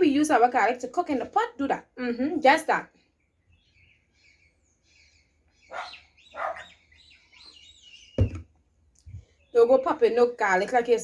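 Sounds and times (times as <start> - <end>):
small birds chirping: 0.0 - 11.0
sharp thump: 8.2 - 8.5.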